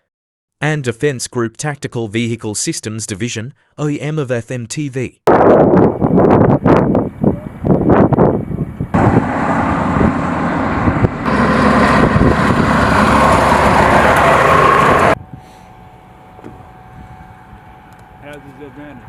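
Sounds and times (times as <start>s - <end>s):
road rumble: 6.0s - 19.0s
heavy truck engine running: 7.0s - 19.0s.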